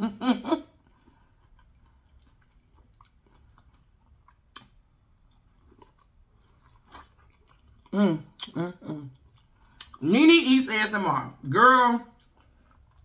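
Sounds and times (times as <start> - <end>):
faint chewing: 0.7 - 10.0, 12.1 - 13.0.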